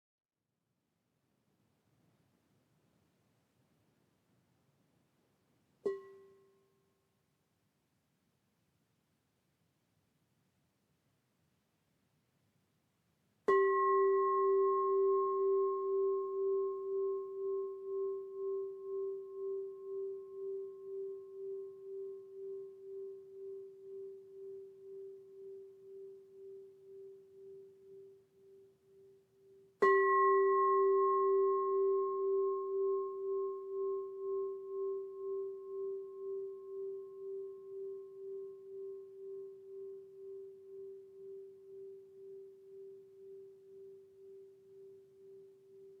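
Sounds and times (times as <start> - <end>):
singing bowl ringing: 13.5 - 46.0.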